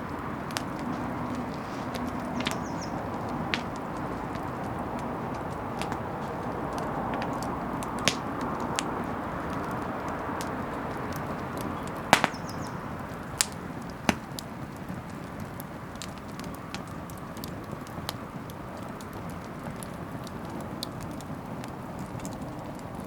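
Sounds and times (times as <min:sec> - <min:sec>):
steady hiss: 0:00.0 - 0:15.9
bonfire crackling: 0:00.0 - 0:23.0
fire popping: 0:00.0 - 0:23.0.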